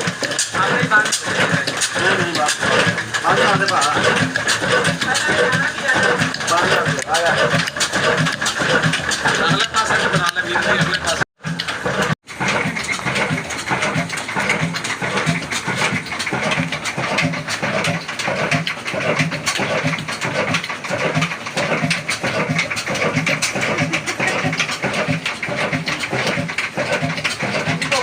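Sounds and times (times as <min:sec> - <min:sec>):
slow diesel engine running: 0:00.0 - 0:28.0.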